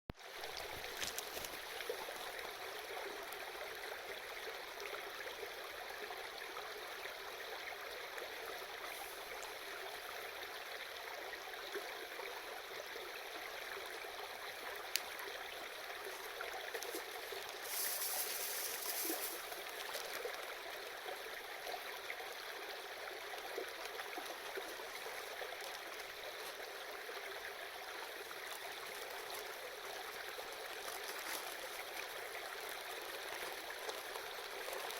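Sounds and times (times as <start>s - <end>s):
river babbling over stones: 0.2s - 4.6s, 12.8s - 34.9s.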